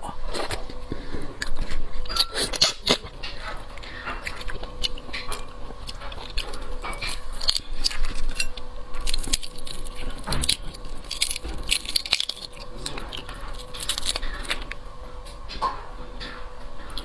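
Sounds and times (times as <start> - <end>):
chewing: 0.0 - 17.0
shrimp shells crackling: 4.0 - 14.9.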